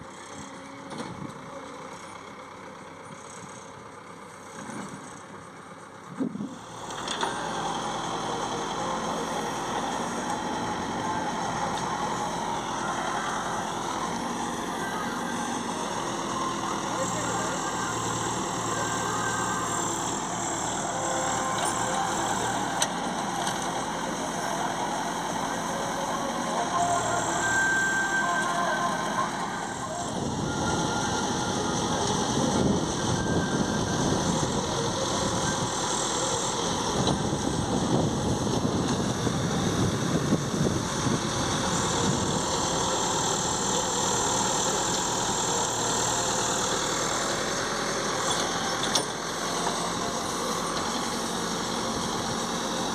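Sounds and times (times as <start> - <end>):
heavy diesel engines running: 0.0 - 52.9.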